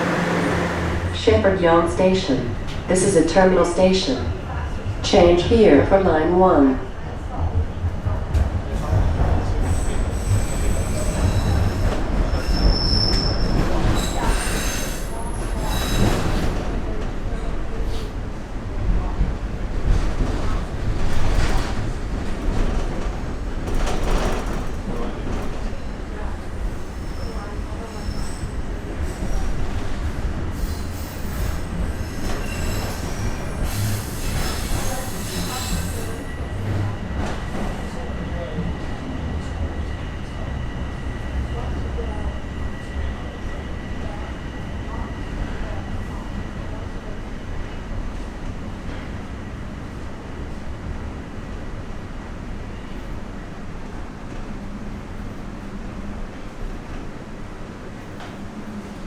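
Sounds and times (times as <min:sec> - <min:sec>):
train running rumble: 0:00.0 - 0:59.0
train wheels squealing on rails: 0:09.4 - 0:16.7, 0:26.6 - 0:46.8.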